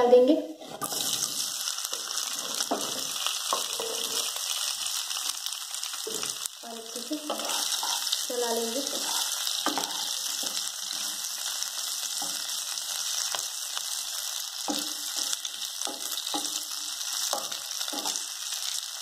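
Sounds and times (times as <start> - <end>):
spatula scraping a pan: 0.6 - 4.7, 7.1 - 13.3
potatoes sizzling in oil: 0.6 - 19.0.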